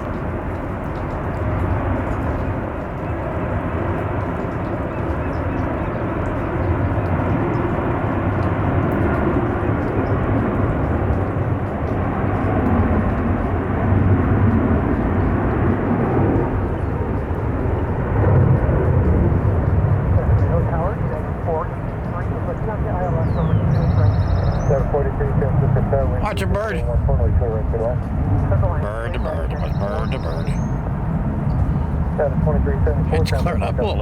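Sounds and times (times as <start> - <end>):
jet engines: 0.0 - 24.1, 24.9 - 34.0.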